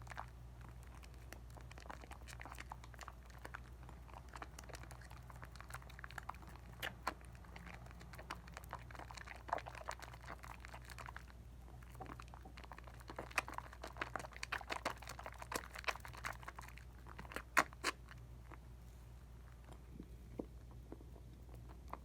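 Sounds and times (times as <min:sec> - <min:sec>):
soap lather squelching: 0:00.8 - 0:18.1.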